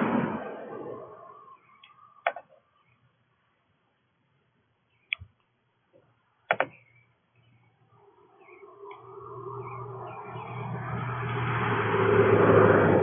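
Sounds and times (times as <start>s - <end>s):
sharp clicks: 1.8s - 2.6s, 5.0s - 5.5s, 6.5s - 6.8s.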